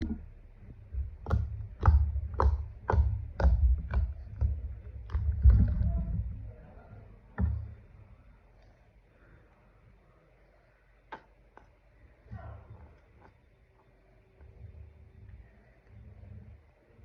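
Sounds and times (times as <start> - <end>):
low thumps: 0.0 - 8.3.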